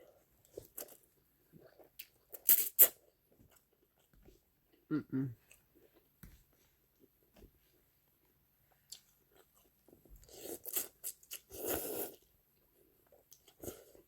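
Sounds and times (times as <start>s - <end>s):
person humming: 4.9s - 5.4s.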